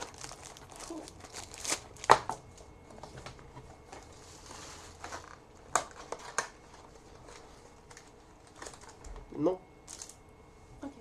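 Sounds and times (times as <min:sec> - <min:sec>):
wrapper and cardboard rustling: 0:00.0 - 0:02.4, 0:03.9 - 0:09.0.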